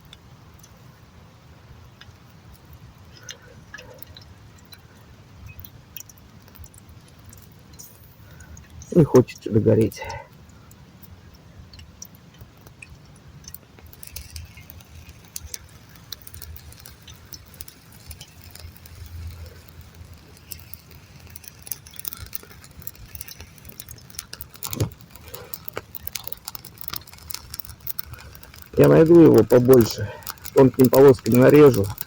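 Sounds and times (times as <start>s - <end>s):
small clicks: 2.0s - 32.0s.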